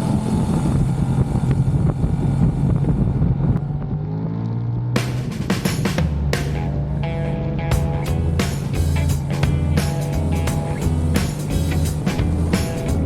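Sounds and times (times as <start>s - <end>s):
motorcycle engine running: 0.0s - 13.0s
wind noise on microphone: 0.1s - 4.1s.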